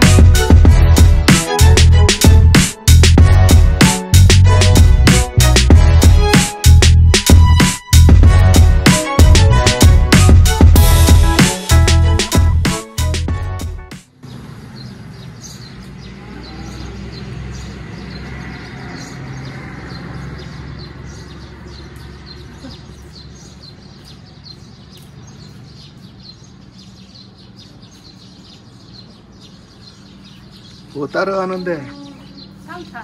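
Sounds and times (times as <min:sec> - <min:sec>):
small birds chirping: 0:14.1 - 0:33.0.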